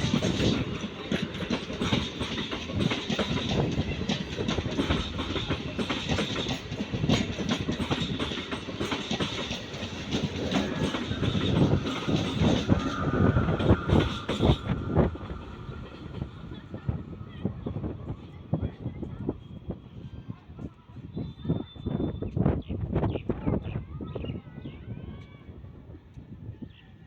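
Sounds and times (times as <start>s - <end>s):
train wheels clattering: 0.0s - 17.0s.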